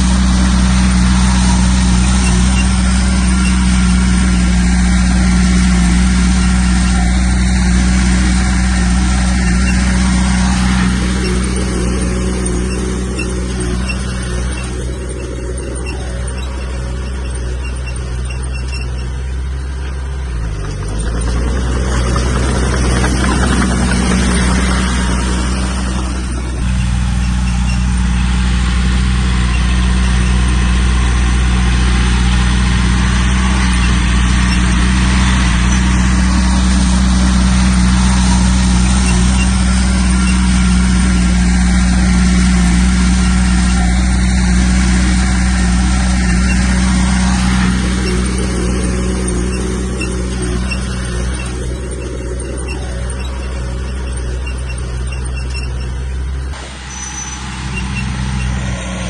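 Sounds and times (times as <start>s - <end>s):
diesel engine of heavy machinery: 0.0s - 59.0s.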